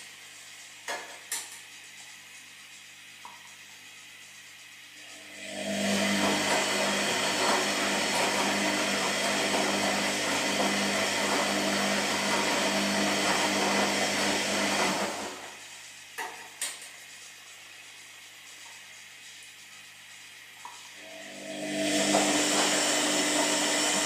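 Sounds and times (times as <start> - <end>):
washing machine motor hum: 0.0 - 24.0.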